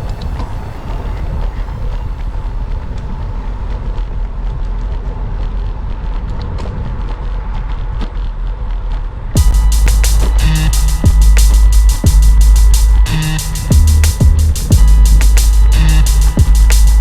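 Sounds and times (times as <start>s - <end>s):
bicycle road noise: 0.0s - 9.3s
wind rumbling on microphone: 0.0s - 9.7s
drum-heavy music: 9.4s - 17.0s.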